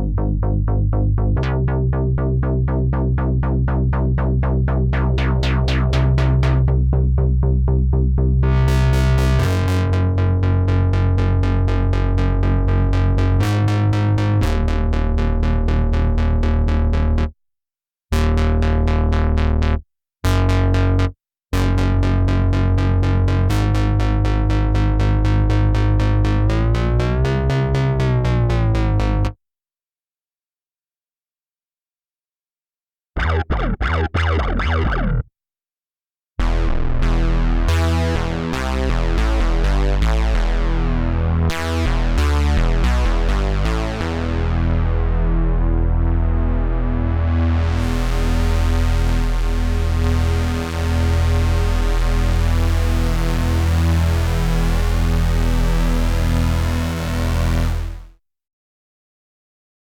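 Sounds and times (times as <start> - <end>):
arpeggiated synthesizer: 3.2 - 6.8, 33.2 - 35.3.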